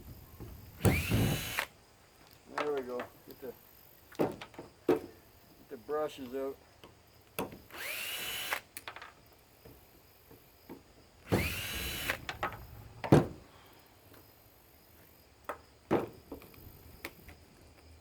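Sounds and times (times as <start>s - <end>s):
cordless drill whine: 0.8s - 1.7s, 7.7s - 8.7s, 11.3s - 12.7s.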